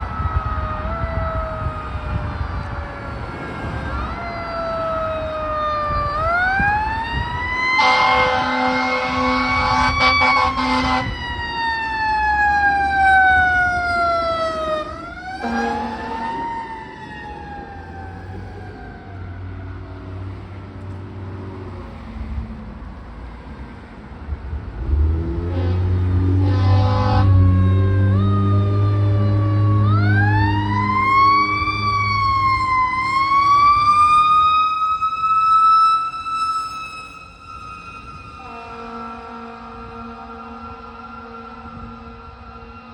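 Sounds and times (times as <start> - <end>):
mechanical siren wailing: 0.0 - 20.0, 25.5 - 42.9
air horn blasts: 7.7 - 11.2, 15.4 - 16.6, 25.5 - 28.1, 38.3 - 42.9.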